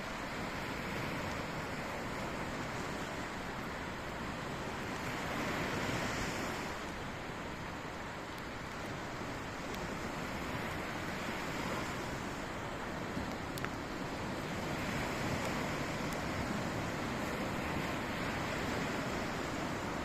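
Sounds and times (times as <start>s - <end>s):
sea surf washing ashore: 0.0s - 20.0s
faint sharp clicks: 13.2s - 13.8s.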